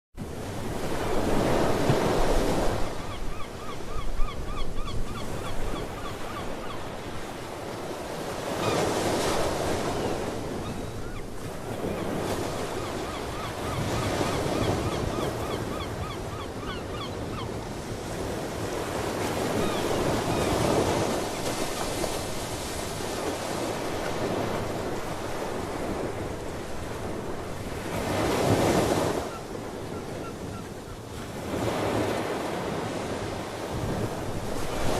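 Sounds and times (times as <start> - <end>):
ocean waves breaking on shore: 0.2 - 34.9
seabirds calling: 0.9 - 18.2, 18.8 - 22.2, 27.1 - 32.5.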